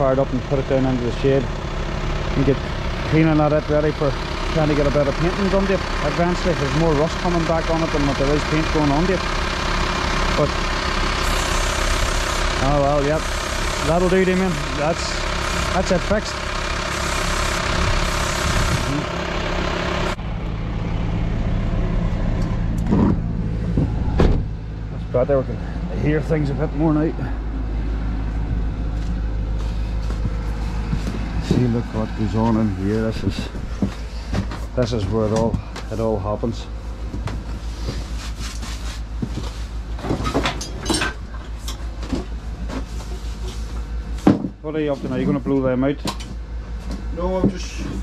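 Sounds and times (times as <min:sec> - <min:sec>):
pulsing machine hum: 0:00.0 - 0:38.2
engine idling: 0:00.0 - 0:48.0
knocks and clatter of handling: 0:39.2 - 0:44.6.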